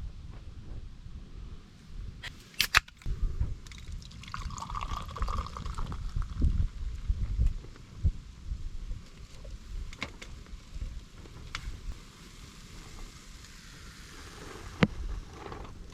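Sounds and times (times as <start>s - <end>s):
sharp clicks or knocks: 2.2s - 3.1s
liquid pouring: 3.7s - 6.4s.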